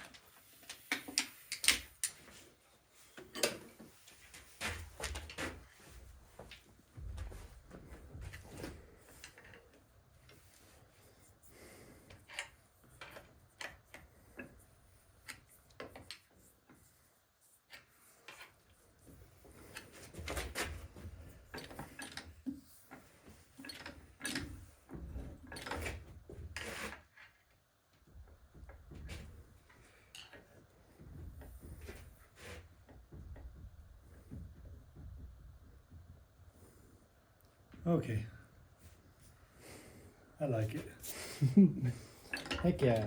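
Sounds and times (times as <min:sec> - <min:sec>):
metal parts clicking and knocking: 0:00.0 - 0:02.2, 0:21.5 - 0:22.6, 0:42.3 - 0:43.0.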